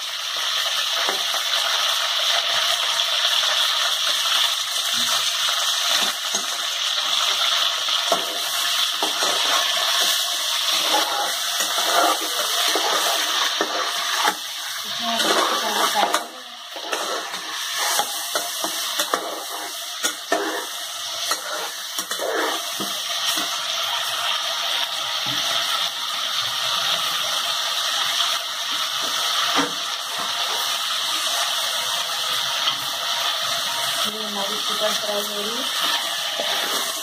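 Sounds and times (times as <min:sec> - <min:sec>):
chicken sizzling in hot oil: 0:00.0 - 0:37.0
spoon knocking and scraping pot: 0:08.1 - 0:14.5, 0:15.2 - 0:20.7.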